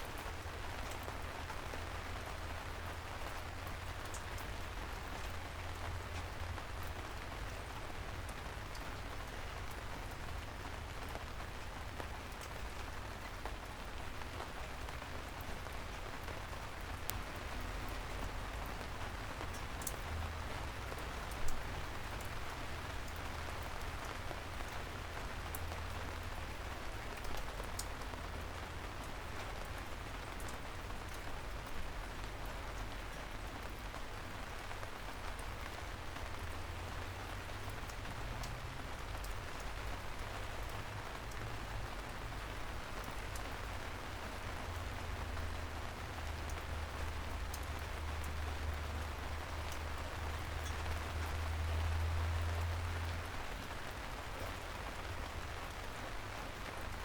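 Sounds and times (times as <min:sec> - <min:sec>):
raindrops ticking close by: 0:00.0 - 0:57.0
soft rain on a street: 0:00.0 - 0:57.0.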